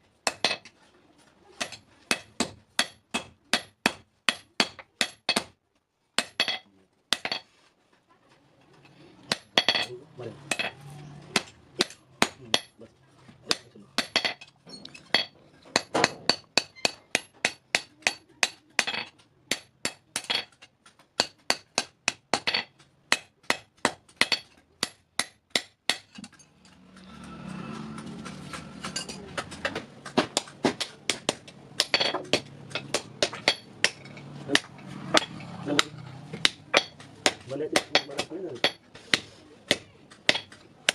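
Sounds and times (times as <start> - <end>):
hammer striking steel on anvil: 1.6 - 5.5, 9.3 - 9.9, 10.5 - 10.8, 30.4 - 40.9.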